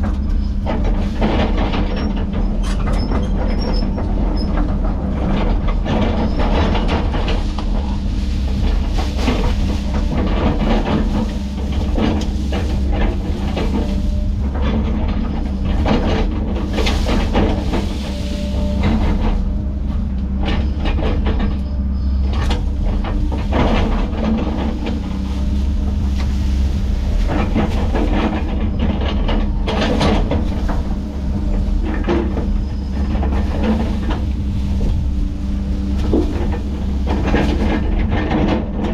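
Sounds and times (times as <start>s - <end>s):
heavy diesel machinery running: 0.0s - 38.9s.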